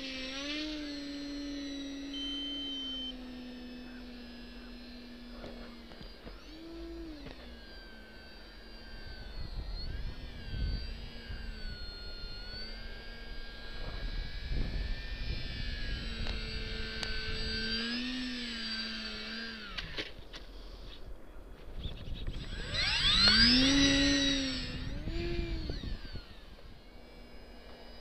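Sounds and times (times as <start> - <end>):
model plane motor whining: 0.0 - 28.0
wind rumble on microphone: 13.8 - 17.5, 21.7 - 26.5.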